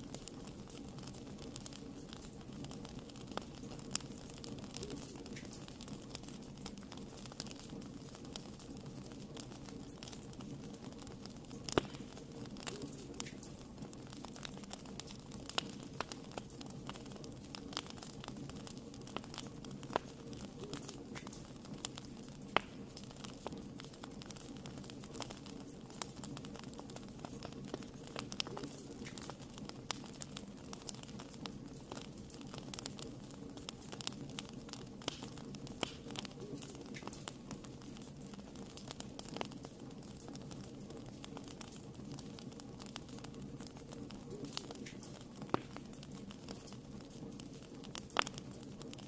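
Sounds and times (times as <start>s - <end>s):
wood fire crackling and popping: 0.0s - 49.0s.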